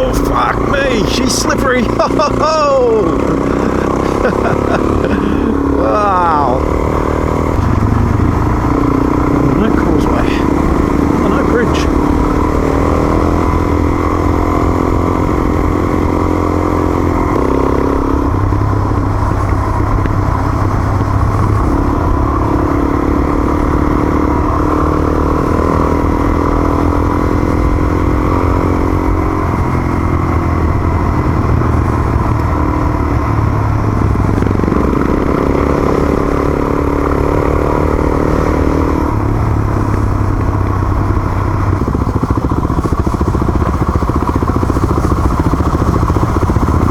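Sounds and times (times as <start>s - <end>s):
motorcycle engine under load: 0.0s - 46.9s.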